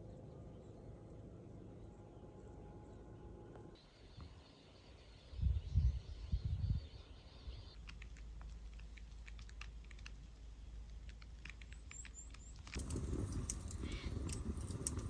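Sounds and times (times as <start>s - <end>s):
wood fire crackling and popping: 7.8s - 15.0s.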